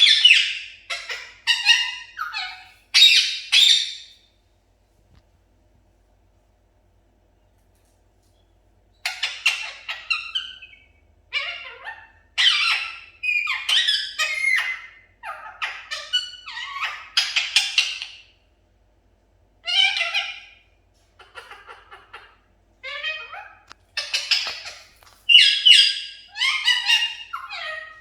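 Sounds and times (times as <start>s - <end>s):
budgerigar chirping: 0.0s - 4.1s, 9.0s - 18.3s, 21.2s - 28.0s.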